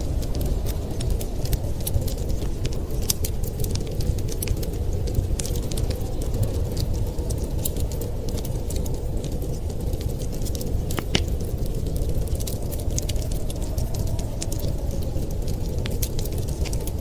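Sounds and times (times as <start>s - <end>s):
low rumble of storm wind: 0.0s - 17.0s
wood fire crackling: 0.0s - 17.0s.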